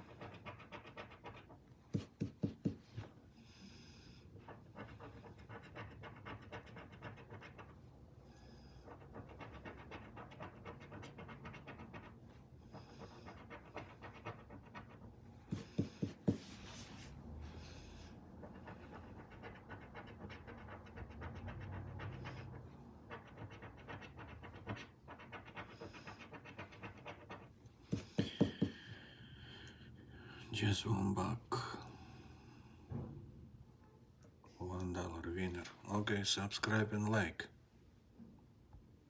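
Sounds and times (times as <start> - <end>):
scratching lottery ticket: 0.0 - 2.8, 4.4 - 8.0, 8.6 - 17.1, 18.2 - 28.8
sharp taps: 27.9 - 28.8.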